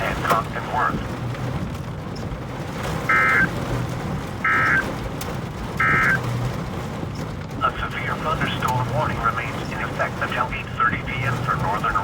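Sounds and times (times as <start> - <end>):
vehicle cabin rumble: 0.0 - 12.0
short electronic beeps: 3.1 - 3.5, 4.5 - 4.8, 5.8 - 6.2.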